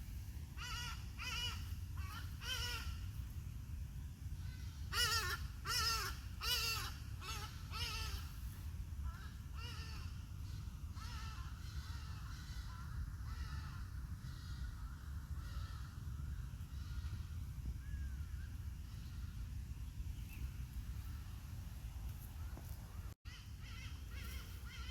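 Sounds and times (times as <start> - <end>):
bird calling: 22.4 - 24.9.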